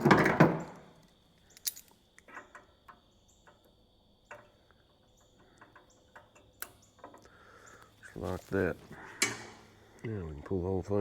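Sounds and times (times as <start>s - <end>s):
hand tools clicking and tapping: 9.0s - 9.6s.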